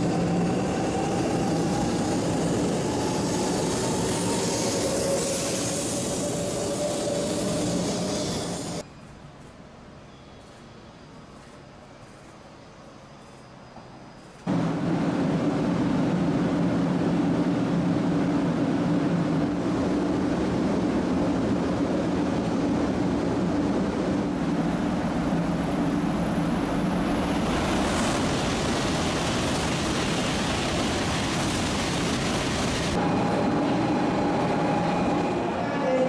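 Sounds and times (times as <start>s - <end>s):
train running noise: 0.0s - 36.0s.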